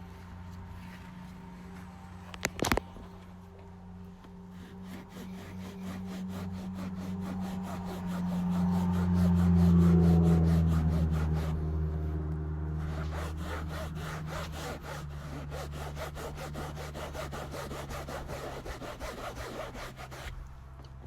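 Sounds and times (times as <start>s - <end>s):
fast rubbing strokes: 4.4s - 11.7s, 12.8s - 20.5s.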